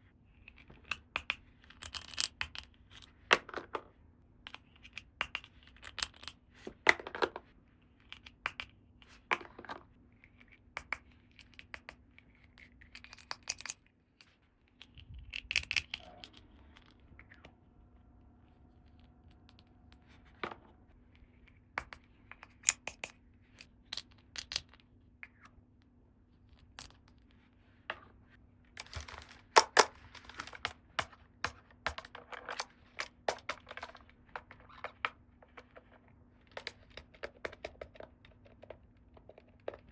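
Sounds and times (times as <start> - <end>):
plastic toy pieces clicking: 12.6 - 13.8, 28.8 - 39.9
packaging rustling: 28.8 - 35.0.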